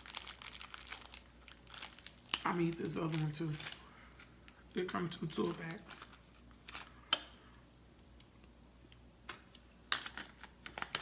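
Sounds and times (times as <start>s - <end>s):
wrapper crackling: 0.0s - 3.9s.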